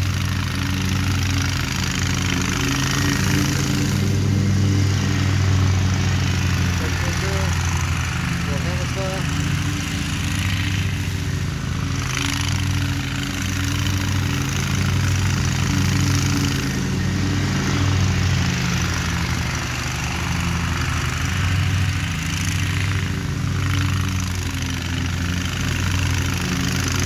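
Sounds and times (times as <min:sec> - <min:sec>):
lawn mower engine running: 0:00.0 - 0:27.0.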